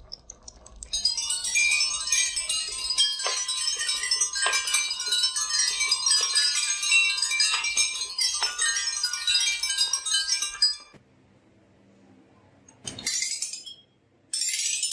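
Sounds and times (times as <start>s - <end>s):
marbles clinking down a marble run: 0.0s - 10.9s, 14.4s - 14.9s.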